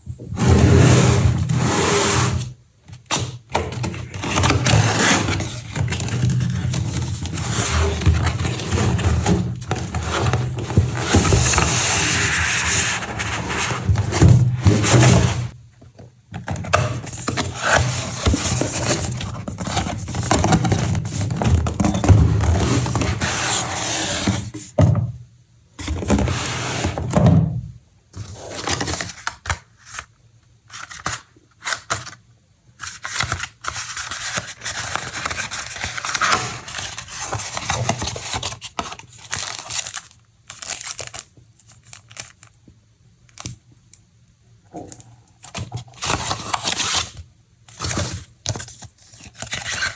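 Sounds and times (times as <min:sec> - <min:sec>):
cardboard and plastic rustling: 0:02.3 - 0:25.0, 0:32.8 - 0:42.6, 0:45.4 - 0:49.9.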